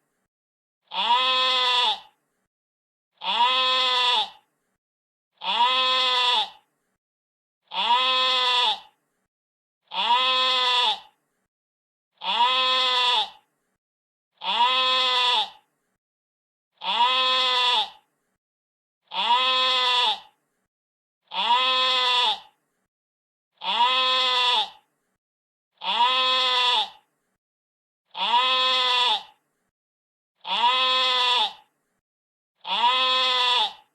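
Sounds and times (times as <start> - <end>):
sheep bleating: 0.9 - 2.1, 3.2 - 4.4, 5.4 - 6.6, 7.7 - 8.9, 9.9 - 11.2, 12.2 - 13.4, 14.4 - 15.6, 16.8 - 18.0, 19.1 - 20.3, 21.3 - 22.5, 23.6 - 24.8, 25.8 - 27.0, 28.1 - 29.4, 30.4 - 31.7, 32.6 - 33.9.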